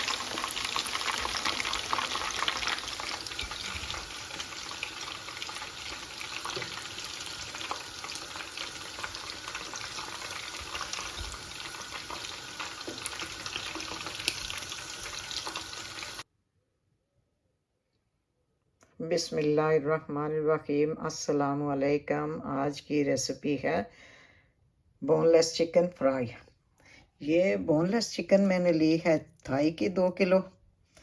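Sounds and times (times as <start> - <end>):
chicken deep-frying in oil: 0.0 - 16.2.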